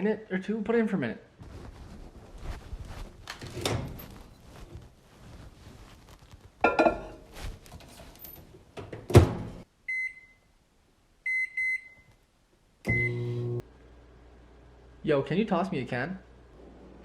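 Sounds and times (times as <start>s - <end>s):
short keypad beeps: 12.9s - 13.3s.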